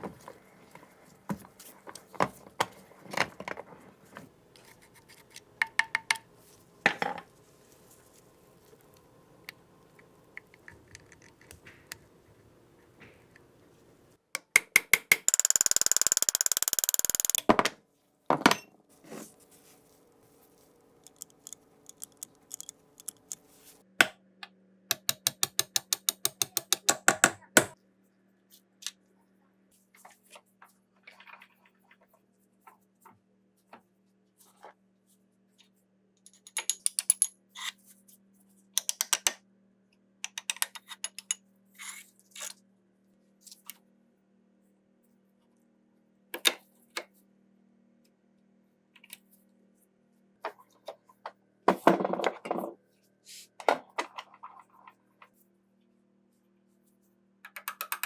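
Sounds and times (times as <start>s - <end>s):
faint steady hum: 0.0s - 14.3s
sharp metallic clicks: 14.4s - 17.5s.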